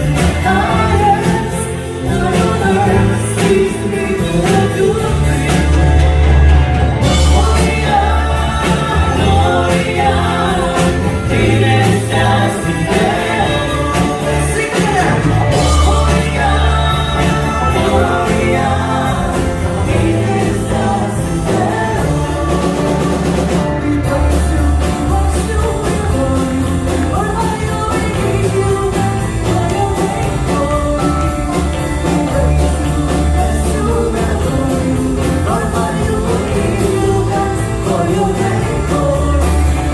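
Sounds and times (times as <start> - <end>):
group singing with band: 0.0 - 39.9.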